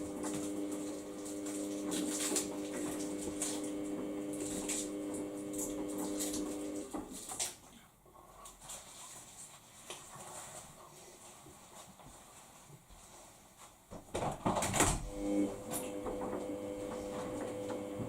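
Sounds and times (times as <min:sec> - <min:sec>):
washing machine humming: 0:00.0 - 0:07.3, 0:14.1 - 0:18.0.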